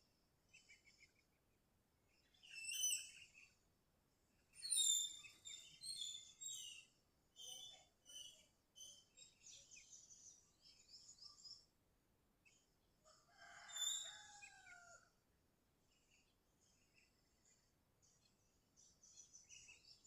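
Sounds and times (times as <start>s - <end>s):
rooster crowing: 13.2s - 15.0s.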